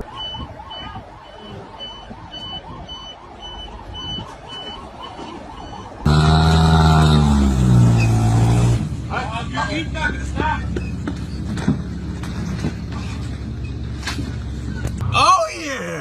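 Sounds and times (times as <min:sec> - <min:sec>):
vehicle warning beeper: 0:00.0 - 0:06.1.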